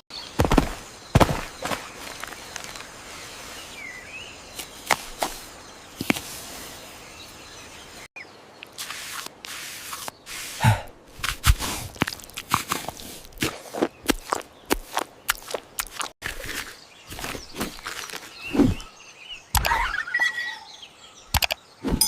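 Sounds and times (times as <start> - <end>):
faint outdoor ambience: 0.1 - 22.0
sharp clicks and knocks: 21.3 - 21.6.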